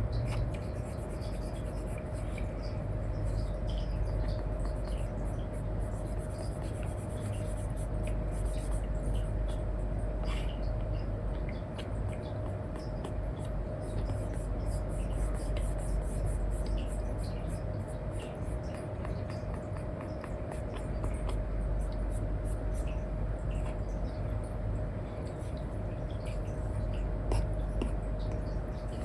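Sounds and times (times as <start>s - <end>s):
steady low hum: 0.0s - 29.0s
stylus scratching and tapping screen: 0.2s - 2.4s, 4.1s - 9.6s, 11.8s - 22.9s.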